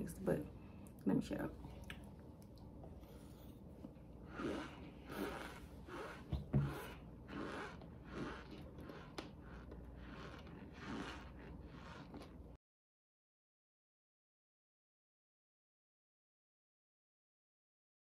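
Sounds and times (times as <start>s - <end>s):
squeaky crunchy chewing: 4.3s - 12.6s.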